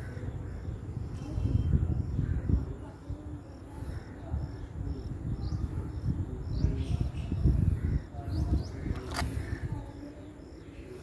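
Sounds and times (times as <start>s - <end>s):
birds chirping: 0.0s - 11.0s
sharp click: 8.9s - 9.3s.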